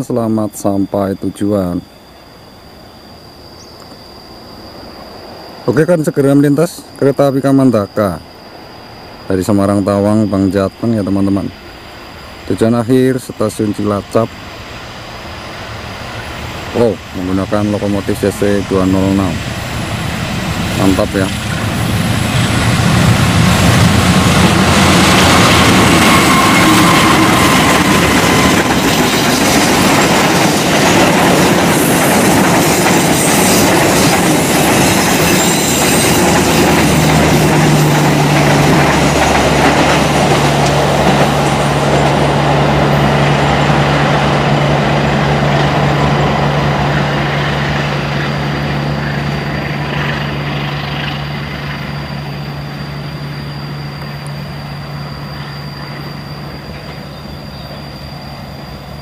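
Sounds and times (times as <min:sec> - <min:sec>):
train carriages clattering on track: 0:20.7 - 0:59.0.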